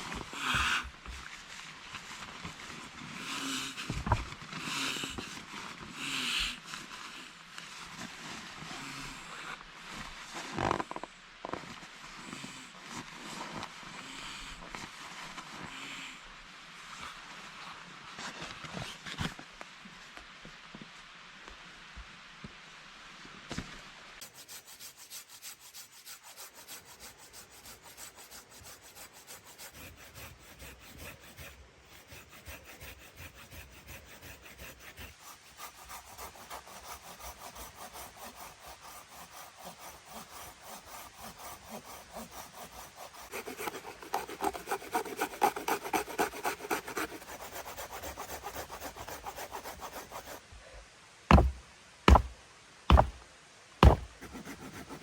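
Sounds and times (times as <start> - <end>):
hand saw cutting wood: 3.2 - 4.0, 24.2 - 50.4, 51.3 - 52.3, 52.9 - 53.2, 53.8 - 55.0
sharp knocks of wood: 51.3 - 52.3, 52.9 - 53.2, 53.8 - 54.4.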